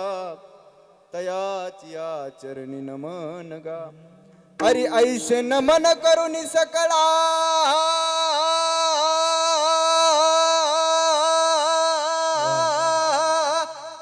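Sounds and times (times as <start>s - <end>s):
man singing long high note: 7.6s - 14.0s.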